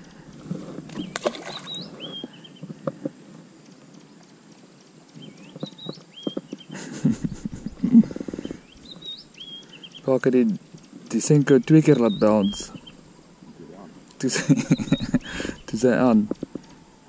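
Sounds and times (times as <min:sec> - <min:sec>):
bird whistling: 0:01.0 - 0:02.6, 0:08.4 - 0:10.1, 0:12.0 - 0:13.0, 0:14.6 - 0:15.7.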